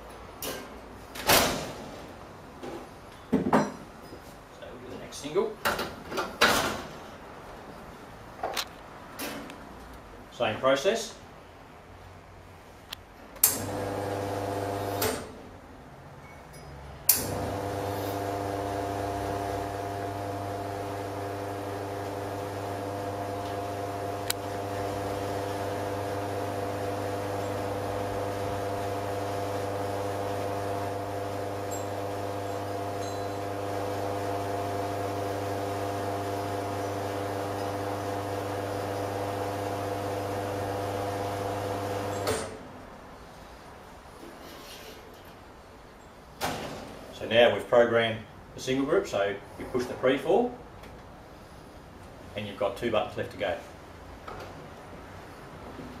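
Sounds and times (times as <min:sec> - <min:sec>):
espresso machine pump humming: 0:13.7 - 0:15.0, 0:17.2 - 0:42.3.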